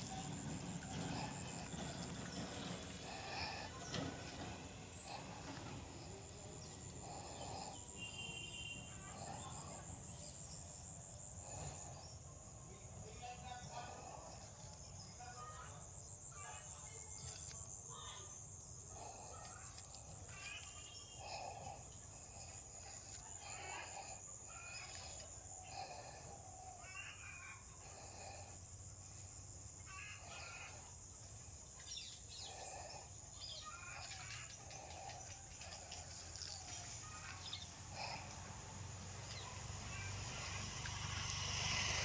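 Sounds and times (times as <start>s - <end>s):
high-pitched insect drone: 27.9s - 42.0s.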